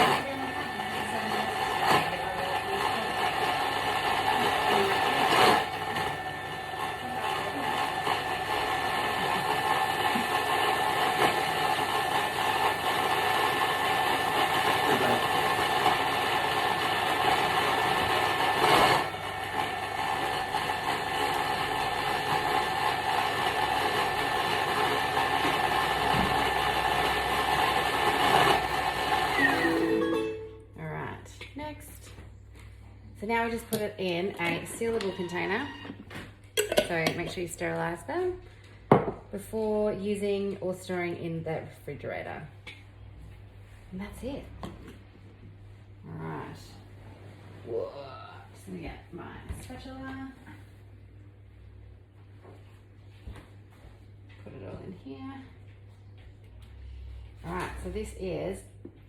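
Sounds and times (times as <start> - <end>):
food processor motor whirring: 0.0 - 29.9.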